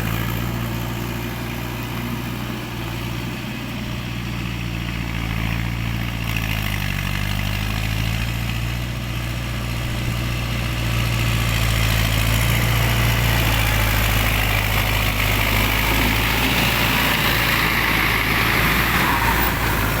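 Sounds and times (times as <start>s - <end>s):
tractor engine under load: 0.0s - 20.0s.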